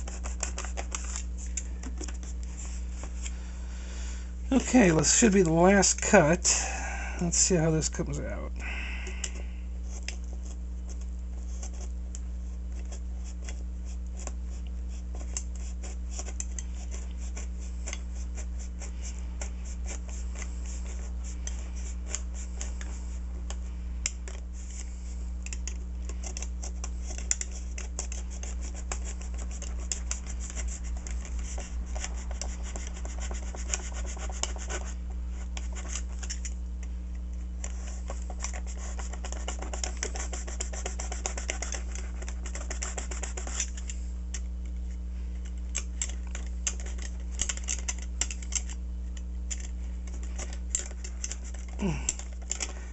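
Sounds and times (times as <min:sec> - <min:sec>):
steady low hum: 0:00.0 - 0:52.9
utility knife cutting foam: 0:38.0 - 0:43.8.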